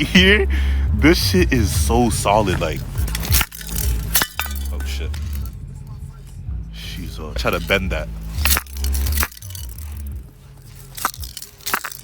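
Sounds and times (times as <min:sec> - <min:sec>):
handling rumble: 0:00.0 - 0:12.0
metal cracks and clicks: 0:02.6 - 0:05.5, 0:07.4 - 0:12.0.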